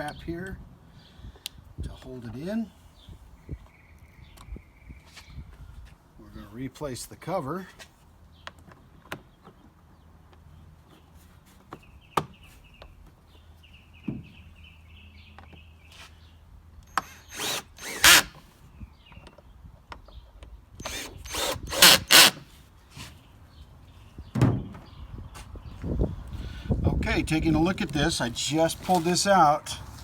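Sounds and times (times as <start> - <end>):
cordless drill running: 16.9 - 18.4, 20.8 - 22.4.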